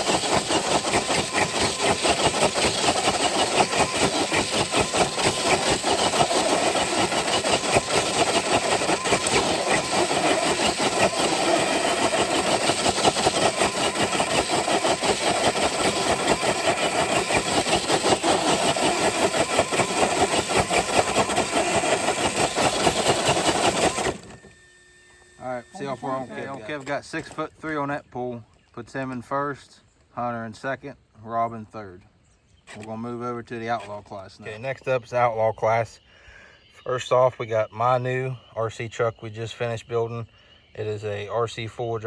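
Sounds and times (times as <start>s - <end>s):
sled dragging: 0.0s - 24.5s
toy truck electric motor straining: 0.0s - 27.4s.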